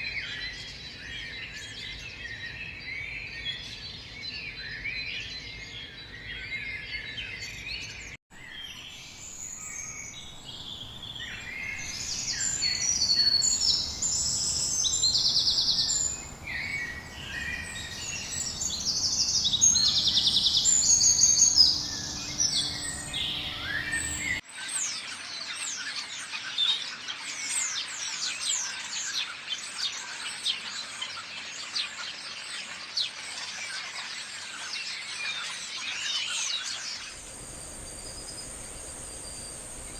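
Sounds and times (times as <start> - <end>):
birds calling and trilling: 0.2 - 39.9
chorus of fast high chirps: 8.7 - 24.4, 37.1 - 39.9.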